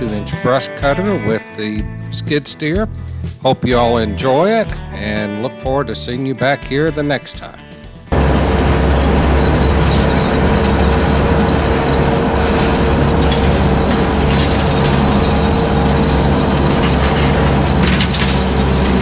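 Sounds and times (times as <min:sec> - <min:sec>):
skid steer with brush cutter droning: 0:08.2 - 0:19.0.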